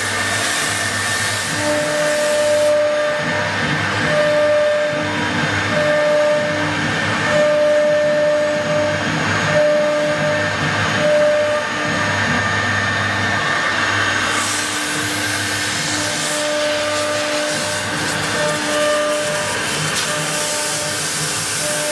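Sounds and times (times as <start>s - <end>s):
hiss of cutting: 0.0s - 3.0s, 13.7s - 21.9s
intermittent machine tone: 0.0s - 21.9s
wood router machine whine: 0.0s - 21.9s.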